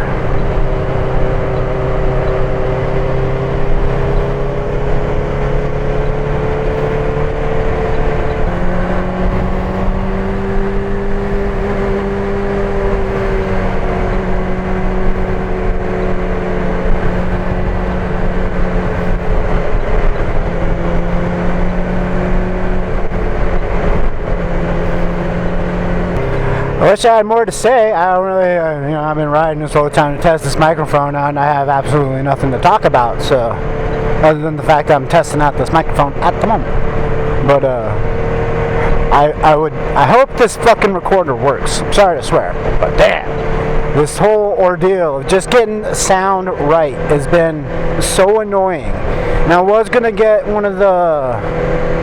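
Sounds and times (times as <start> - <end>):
wind noise: 0.0 - 26.8
motorcycle engine running: 0.0 - 52.0.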